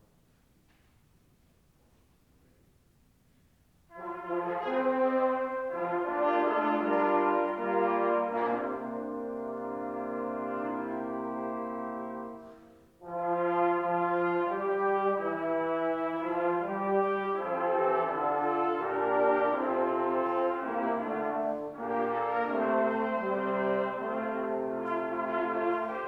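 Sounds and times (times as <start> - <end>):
organ playing a slow hymn: 4.6 - 12.7, 13.4 - 26.0.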